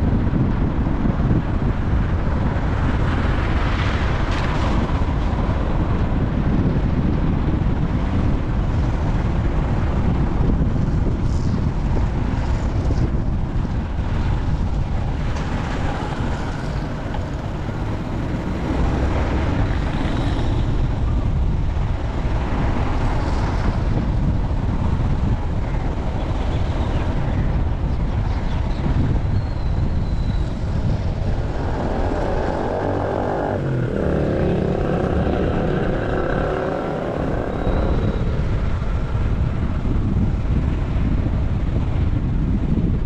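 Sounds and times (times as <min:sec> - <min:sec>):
moving vehicle noise: 0:00.0 - 0:43.0
wind buffeting microphone: 0:00.0 - 0:43.0.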